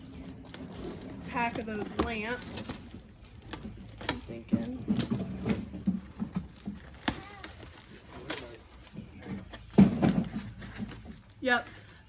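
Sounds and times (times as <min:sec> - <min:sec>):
cardboard box knocks and rustles: 0:09.2 - 0:11.2.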